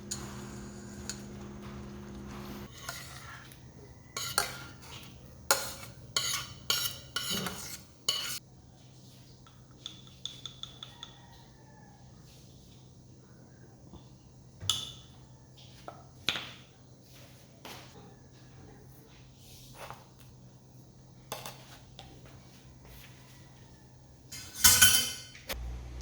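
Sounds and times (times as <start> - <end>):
steady hum: 0.0 - 2.7
utensil scraping and clinking dish: 0.0 - 3.5, 4.1 - 8.4, 24.3 - 25.5.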